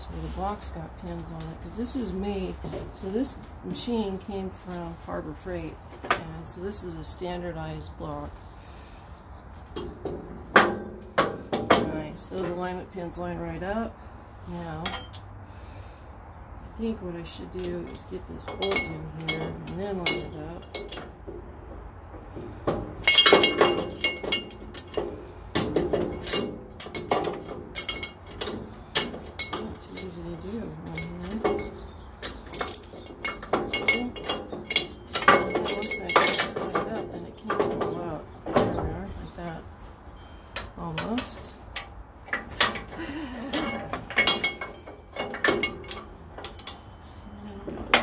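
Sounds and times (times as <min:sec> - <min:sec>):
metal parts clinking and knocking: 0:17.4 - 0:21.5, 0:22.2 - 0:39.6, 0:40.2 - 0:48.0.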